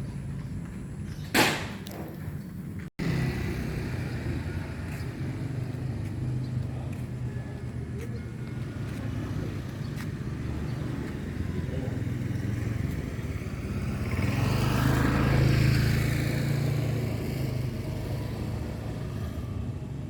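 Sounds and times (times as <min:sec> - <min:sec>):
motor vehicle driving past: 0:03.0 - 0:20.0.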